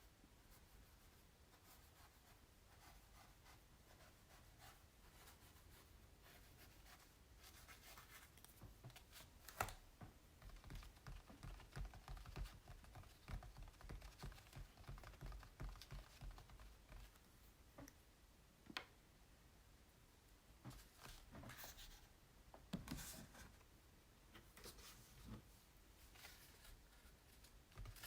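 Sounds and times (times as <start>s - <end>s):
tapping and scratching on canvas: 10.4s - 17.2s.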